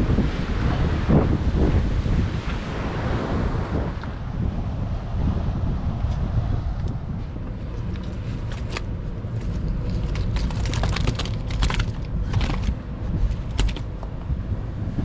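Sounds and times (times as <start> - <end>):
wind buffeting microphone: 0.0 - 15.0
small sharp clicks and crackles: 7.8 - 12.8.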